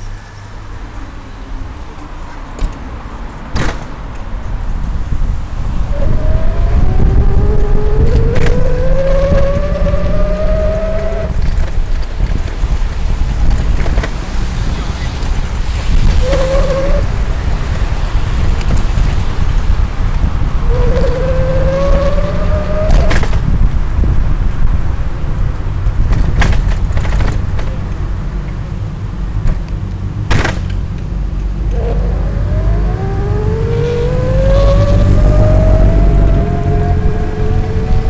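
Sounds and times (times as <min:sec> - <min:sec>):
low rumble of riding noise: 0:00.0 - 0:38.0
electric motor whining: 0:05.8 - 0:11.5, 0:20.6 - 0:23.1, 0:31.7 - 0:38.0.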